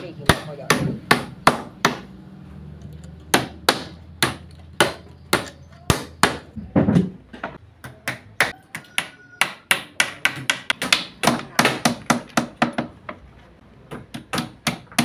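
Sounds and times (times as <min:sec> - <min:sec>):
hammer nailing wood: 0:00.2 - 0:02.1, 0:03.3 - 0:07.1, 0:07.9 - 0:13.0, 0:13.9 - 0:15.0.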